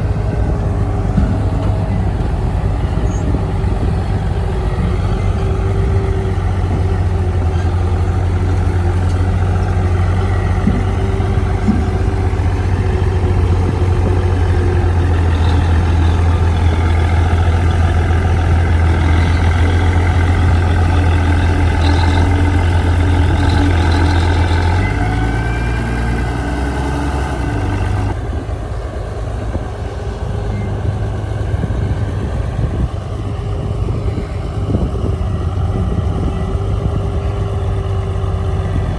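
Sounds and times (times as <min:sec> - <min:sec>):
heavy diesel engine droning: 0:00.0 - 0:38.9.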